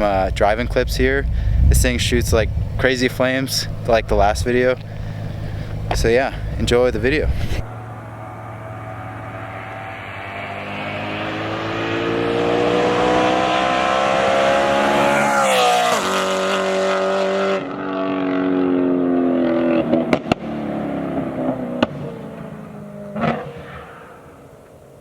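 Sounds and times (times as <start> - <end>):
car exhaust revving: 0.0 - 24.8
exhaust pops and cracks: 0.1 - 7.6, 19.9 - 20.6, 21.4 - 22.1.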